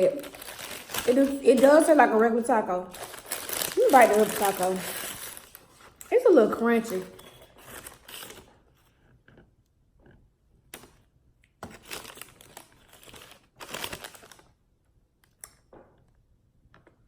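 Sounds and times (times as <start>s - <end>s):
paper wrapper crinkling: 0.0s - 8.9s, 11.6s - 14.6s.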